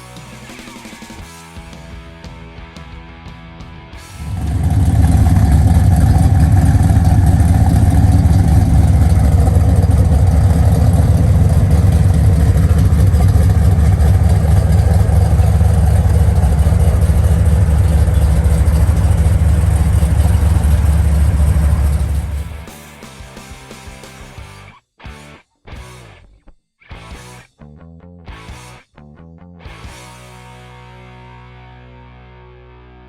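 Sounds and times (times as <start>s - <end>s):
car engine idling: 4.2s - 22.7s.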